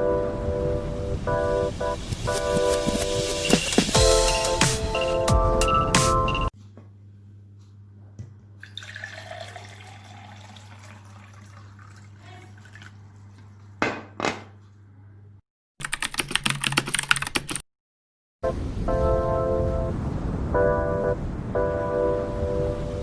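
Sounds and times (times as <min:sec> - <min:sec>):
rapid keyboard typing: 0:15.8 - 0:17.6.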